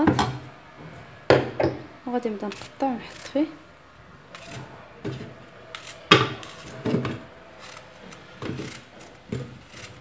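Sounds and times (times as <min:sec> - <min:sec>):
knife cutting apples: 0:02.3 - 0:03.6, 0:04.2 - 0:10.0.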